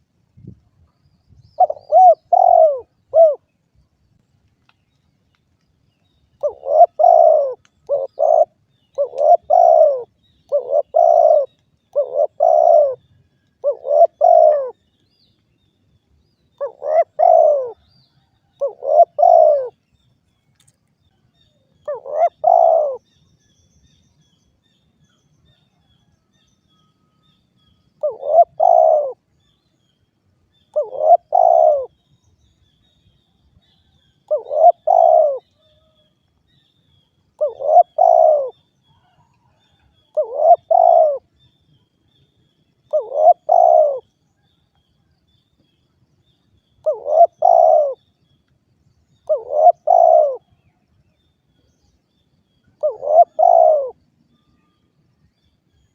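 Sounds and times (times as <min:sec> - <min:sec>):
dove cooing: 0:01.6 - 0:03.5, 0:06.4 - 0:13.0, 0:13.6 - 0:14.8, 0:16.6 - 0:17.8, 0:18.6 - 0:19.8, 0:21.8 - 0:23.0, 0:28.0 - 0:29.2, 0:30.7 - 0:31.9, 0:34.3 - 0:36.0, 0:37.4 - 0:41.3, 0:42.9 - 0:44.1, 0:46.8 - 0:48.0, 0:49.3 - 0:50.6, 0:52.8 - 0:54.0.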